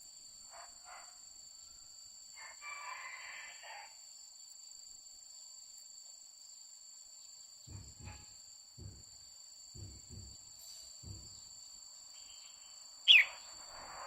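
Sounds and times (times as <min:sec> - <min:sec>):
high insect-like whine: 0:00.0 - 0:14.0
dull low thumps: 0:07.7 - 0:11.6
bird chattering call: 0:13.1 - 0:13.5.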